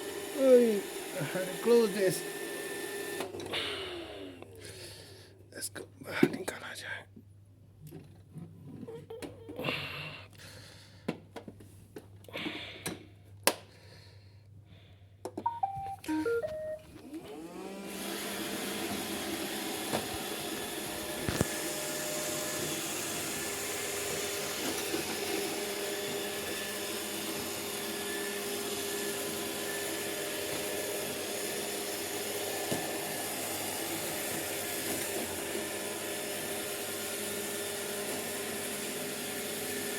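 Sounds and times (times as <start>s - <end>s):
short descending beeps: 15.5s - 16.8s
robot vacuum motors running: 17.2s - 39.9s.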